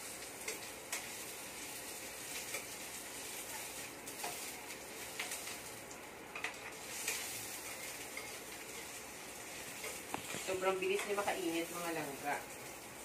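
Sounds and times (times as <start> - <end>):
onion sizzling in a frying pan: 0.0 - 13.0
spatula scraping and tapping pan: 0.4 - 1.3, 2.0 - 5.6, 6.3 - 11.4.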